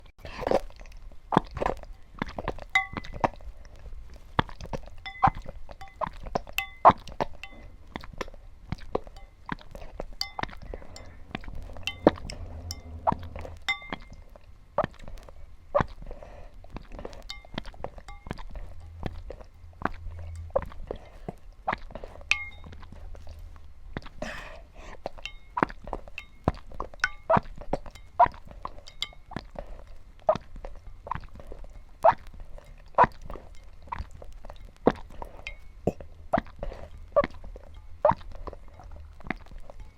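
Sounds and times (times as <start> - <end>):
small objects clinking on a dish: 1.6 - 3.5, 4.3 - 8.2, 8.9 - 14.4, 17.0 - 21.3, 22.0 - 23.3, 25.1 - 29.5.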